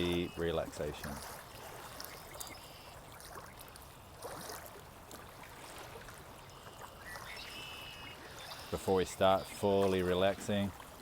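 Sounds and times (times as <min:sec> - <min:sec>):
stream trickling and gurgling: 0:00.0 - 0:11.0
faint high bird calls: 0:02.0 - 0:03.0, 0:06.5 - 0:09.6.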